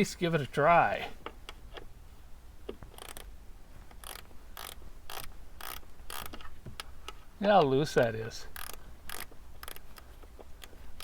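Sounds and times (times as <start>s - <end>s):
ratchet wrench clicking: 4.0s - 6.4s, 8.6s - 10.0s.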